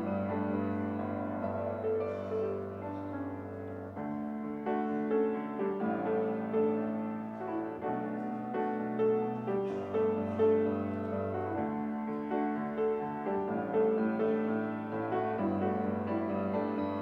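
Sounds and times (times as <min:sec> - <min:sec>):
slow keyboard music: 0:00.0 - 0:17.0.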